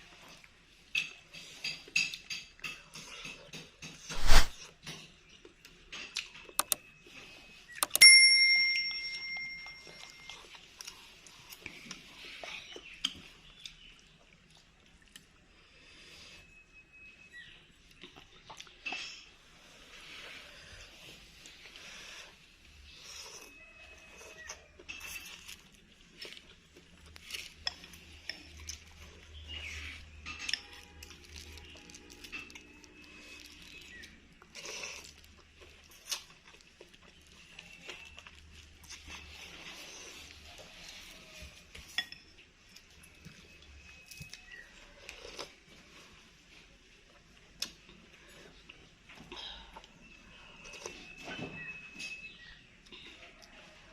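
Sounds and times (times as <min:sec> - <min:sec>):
cutlery clinking against bowl: 0:00.9 - 0:04.2, 0:41.7 - 0:42.4
spoon clinking against bowl: 0:07.8 - 0:10.4
eating noises: 0:17.9 - 0:41.8.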